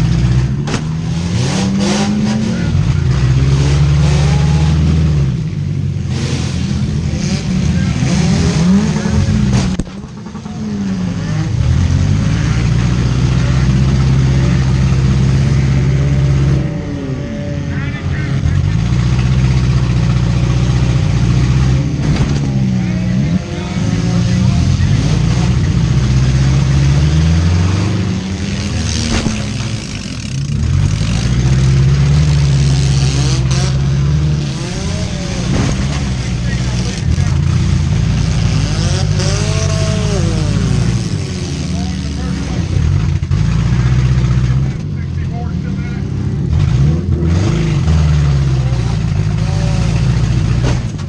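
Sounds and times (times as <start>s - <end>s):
car engine revving: 0.0s - 51.0s
cars hitting knocks: 0.4s - 1.4s, 21.9s - 22.7s, 28.3s - 31.6s, 33.4s - 39.8s, 50.0s - 51.0s.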